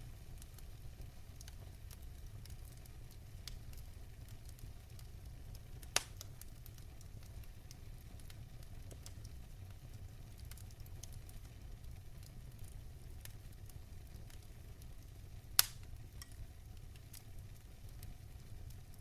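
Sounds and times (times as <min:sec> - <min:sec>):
fire crackling: 0:00.0 - 0:19.0
fire flames rumbling: 0:00.0 - 0:19.0
sharp pop of fire: 0:06.0 - 0:06.2, 0:15.6 - 0:15.9.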